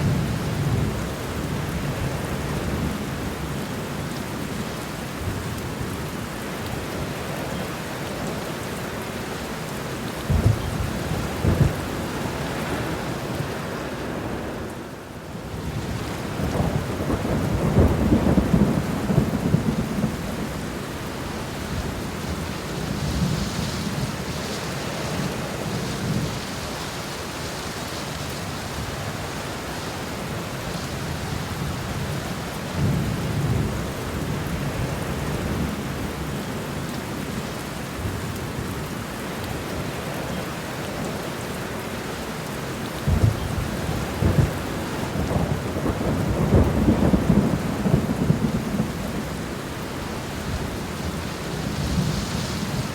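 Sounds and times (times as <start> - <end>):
steady rain: 0.0 - 52.9
thunder claps and rumbles: 10.2 - 13.4, 15.7 - 24.3, 31.0 - 36.4, 43.1 - 52.9.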